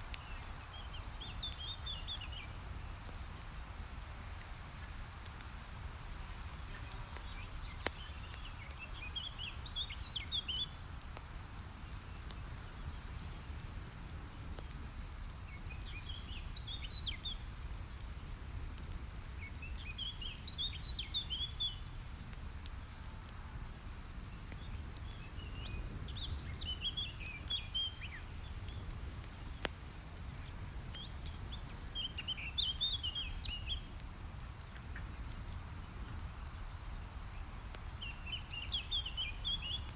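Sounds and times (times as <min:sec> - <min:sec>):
campfire crackling and popping: 0:00.0 - 0:39.9
songbird twittering: 0:25.1 - 0:28.8, 0:31.0 - 0:33.9, 0:38.0 - 0:39.9.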